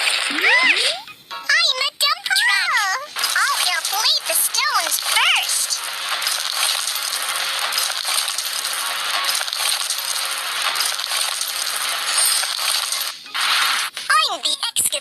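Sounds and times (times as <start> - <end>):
gravel pouring and clattering: 3.2 - 13.2.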